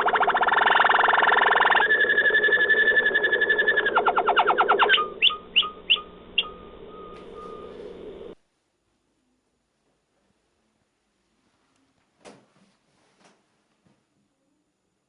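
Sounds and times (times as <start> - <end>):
canary singing: 0.0 - 8.4.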